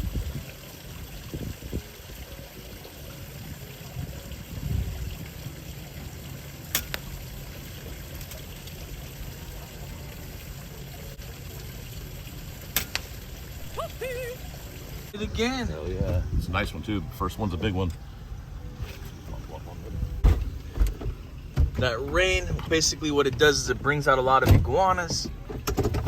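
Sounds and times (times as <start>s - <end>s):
rushing background noise: 1.3s - 26.0s
person speaking: 13.6s - 14.5s.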